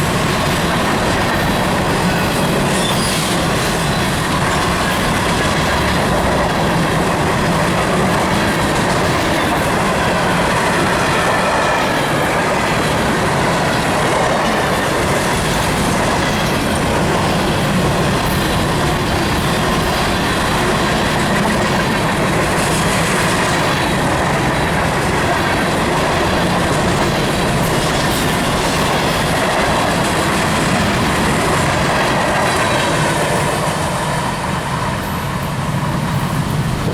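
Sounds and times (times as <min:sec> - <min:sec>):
freight train wheels on rails: 0:00.0 - 0:36.9.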